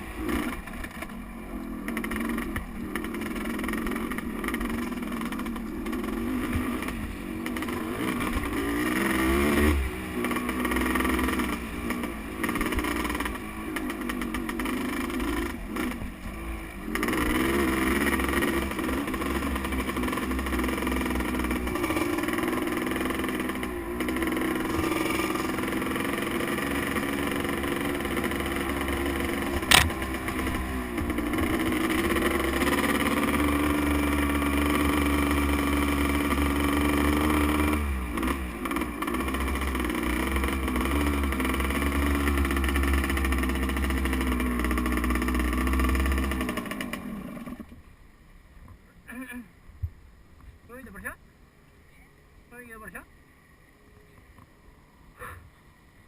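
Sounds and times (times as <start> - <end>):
motocross motorcycle engine revving: 0.0 - 47.8
sharp knock: 29.6 - 29.9.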